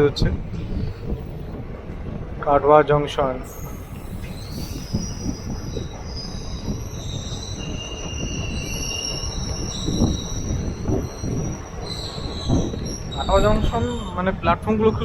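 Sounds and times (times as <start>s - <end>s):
train carriages rumbling and clattering: 0.0s - 15.0s
train wheels and brakes squealing: 3.4s - 15.0s.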